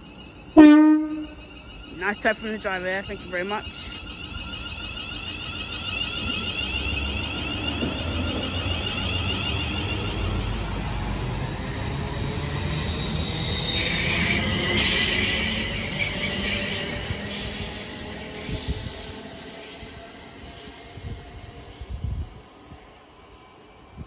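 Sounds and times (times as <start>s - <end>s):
train traction motors whining: 0.0s - 24.0s
wheels rumbling on rail: 0.0s - 24.0s
loud high hiss and squeal: 11.5s - 24.0s.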